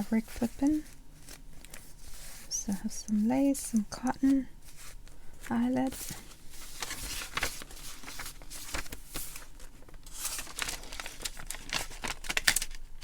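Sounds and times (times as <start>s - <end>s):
pages turning: 0.0s - 12.9s
rustling fabric and paper: 0.0s - 13.0s.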